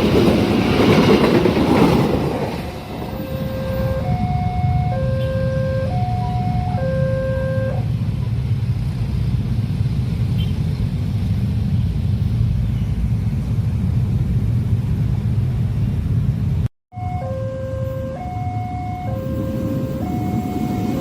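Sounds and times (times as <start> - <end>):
train rumbling past: 0.0 - 21.0
two-tone crossing alarm: 3.1 - 7.8, 16.9 - 21.0.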